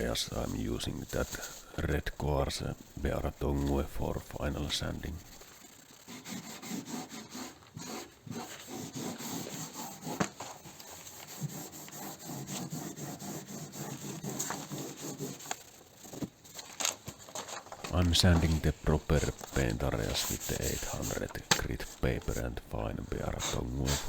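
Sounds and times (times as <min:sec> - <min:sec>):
hand sanding car panel: 0:05.2 - 0:16.3.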